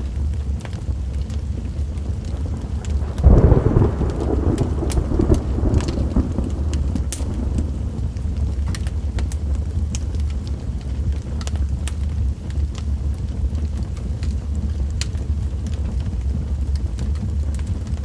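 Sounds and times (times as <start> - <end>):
rain: 0.0 - 18.0
wood fire crackling and popping: 0.1 - 18.0
thunder rumbling: 0.9 - 18.0.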